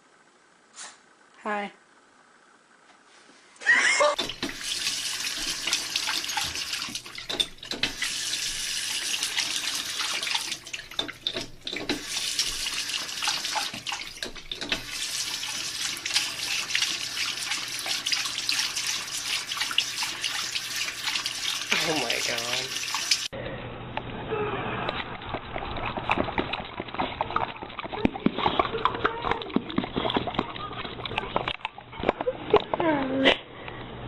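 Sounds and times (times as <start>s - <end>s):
tap water running into sink: 4.2s - 23.3s.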